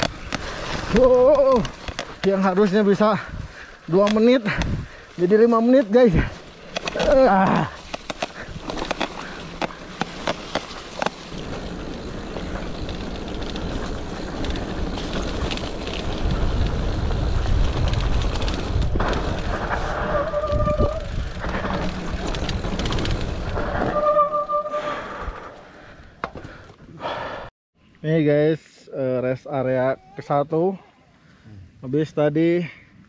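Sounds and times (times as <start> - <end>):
bike rattling over bumps: 0.0 - 26.7
tyres rolling on trail: 0.0 - 27.4
wind noise on microphone: 4.5 - 5.0, 11.4 - 24.2.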